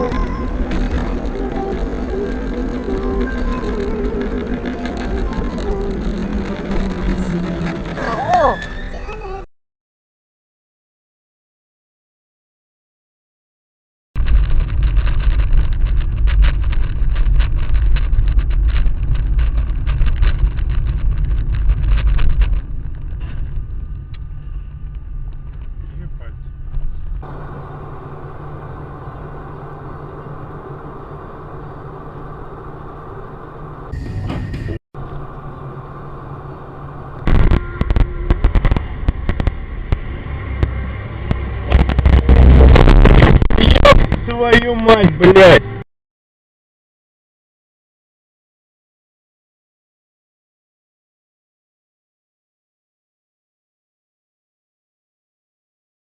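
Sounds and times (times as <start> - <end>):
faint whine: 0.0 - 9.4
engine and road rumble: 0.0 - 9.5, 14.2 - 45.9
loud crash: 37.2 - 44.3
sharp cracks and bangs: 37.2 - 45.1.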